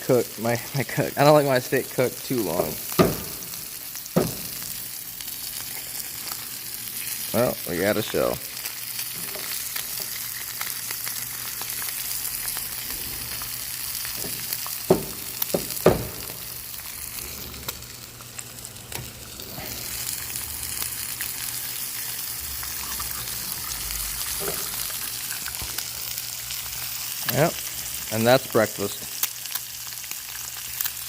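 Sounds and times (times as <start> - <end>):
food sizzling in a skillet: 0.2 - 31.0
sharp knocks: 3.0 - 3.4, 4.2 - 4.5, 14.2 - 16.4.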